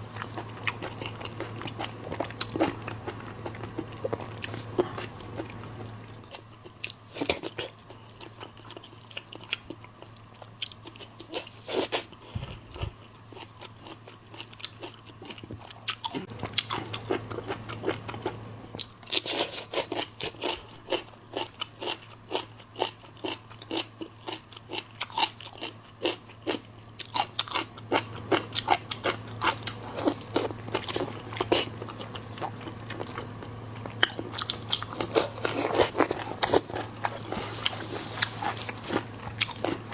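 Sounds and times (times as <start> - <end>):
faint low hum: 0.0 - 39.9
wet chewing: 0.1 - 39.9
crisp crunching: 27.1 - 39.9.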